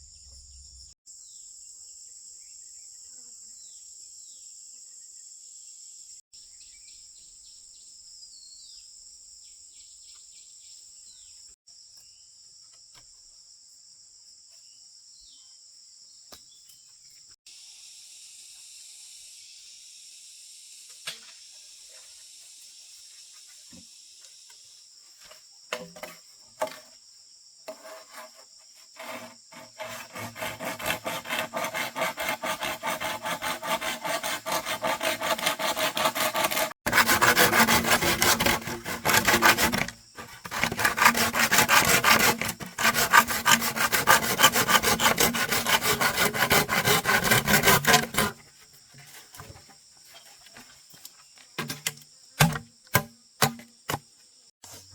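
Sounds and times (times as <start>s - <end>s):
crickets and insects droning: 0.0s - 30.1s
hand saw cutting wood: 27.7s - 48.5s, 52.4s - 54.0s.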